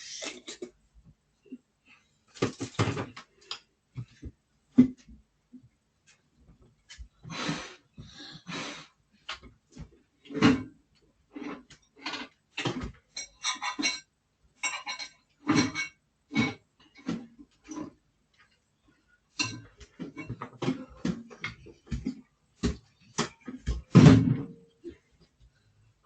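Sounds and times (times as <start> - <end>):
metallic clinks of dishes: 13.2 - 16.0.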